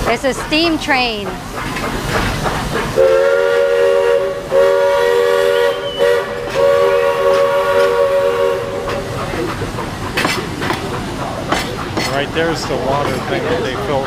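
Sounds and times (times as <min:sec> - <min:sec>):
steam locomotive chime whistle: 0:03.0 - 0:09.0.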